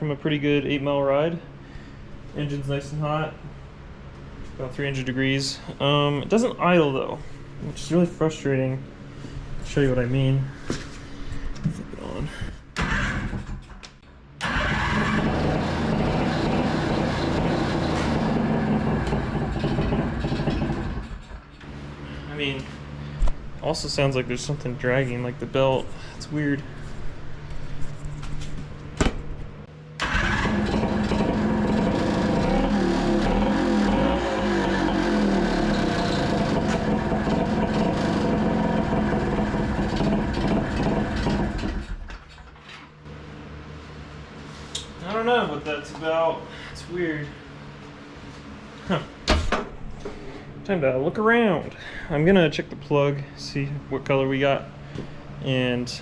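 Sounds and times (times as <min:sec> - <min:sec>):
two-stroke engine running: 0:14.4 - 0:23.0, 0:30.0 - 0:42.0.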